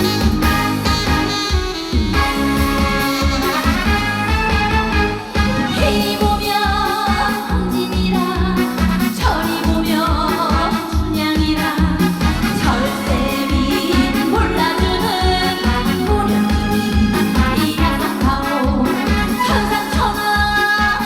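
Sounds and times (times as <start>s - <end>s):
pop-style accompaniment: 0.0s - 21.0s
woman singing: 5.7s - 21.0s.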